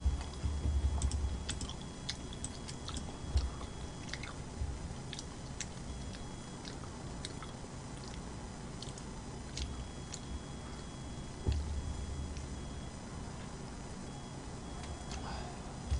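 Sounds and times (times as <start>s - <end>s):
low jaw thuds: 0.0s - 1.7s, 11.4s - 12.8s
chewing mouth sounds: 0.1s - 12.8s.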